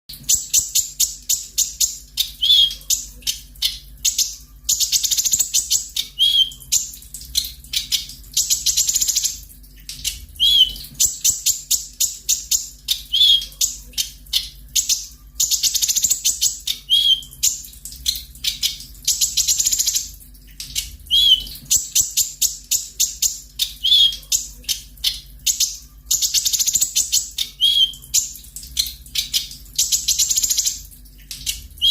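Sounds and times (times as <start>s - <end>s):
faint low hum: 0.1s - 31.9s
bird singing high trills: 4.1s - 6.8s, 10.4s - 11.6s, 14.4s - 17.6s, 21.1s - 22.4s, 25.5s - 28.2s.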